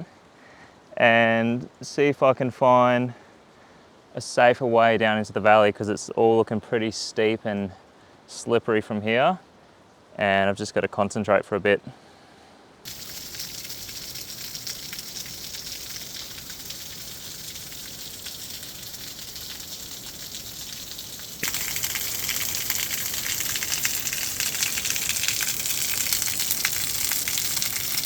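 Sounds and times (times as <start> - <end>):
flowing water rushing: 12.9 - 28.0.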